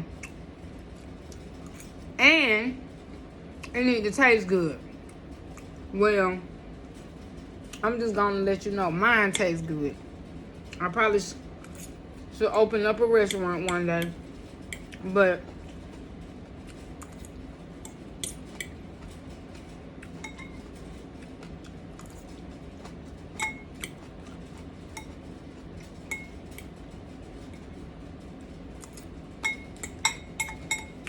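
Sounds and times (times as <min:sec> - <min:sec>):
steady low hum: 0:00.0 - 0:31.0
utensil clinking against bowl: 0:20.0 - 0:20.8, 0:23.3 - 0:24.0, 0:25.9 - 0:26.8, 0:28.9 - 0:31.0.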